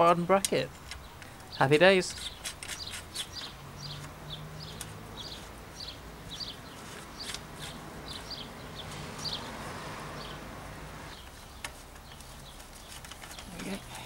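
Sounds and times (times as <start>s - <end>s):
sharp clicks: 0.4s - 5.0s
small bird chirping: 0.6s - 9.6s, 11.1s - 14.0s.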